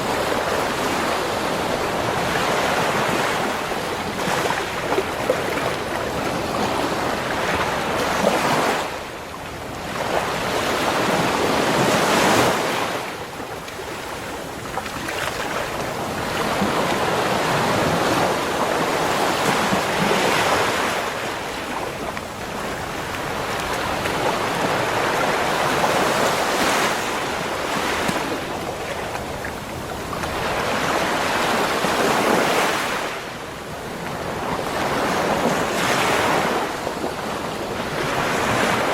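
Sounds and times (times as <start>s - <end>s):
ocean waves on shore: 0.0s - 38.9s.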